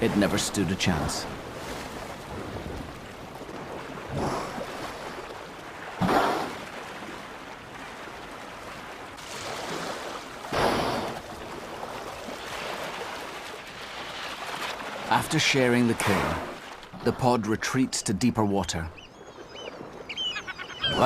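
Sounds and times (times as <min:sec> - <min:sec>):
sea washing: 0:00.0 - 0:21.0
rushing bursts of water: 0:01.3 - 0:17.0.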